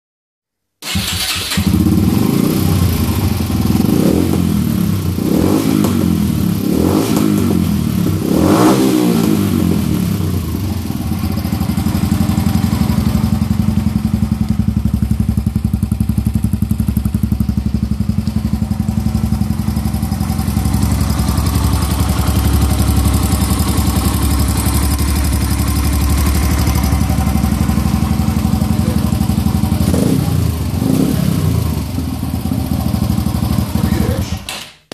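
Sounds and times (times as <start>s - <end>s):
motorcycle engine revving and idling: 0.8s - 34.5s.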